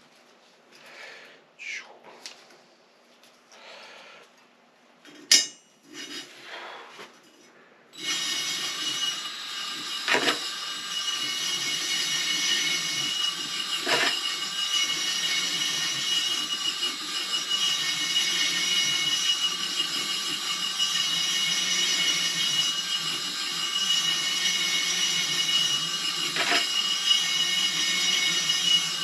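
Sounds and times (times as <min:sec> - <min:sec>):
cylinder hone grinding: 0:08.0 - 0:29.0.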